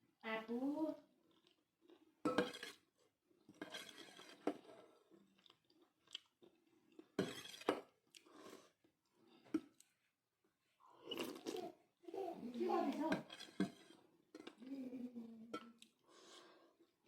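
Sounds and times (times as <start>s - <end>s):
person chewing noodle soup: 1.1s - 11.7s.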